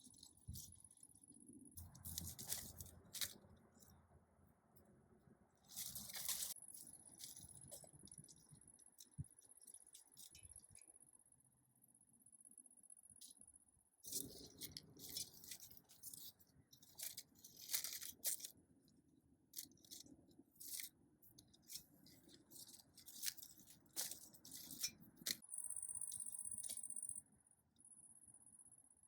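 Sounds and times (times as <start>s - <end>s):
dry bean pods crackling: 1.8s - 3.5s, 5.7s - 6.6s.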